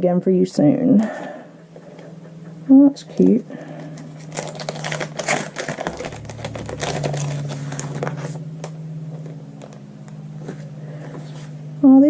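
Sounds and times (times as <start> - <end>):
packaging rustling and crinkling: 3.2 - 9.8.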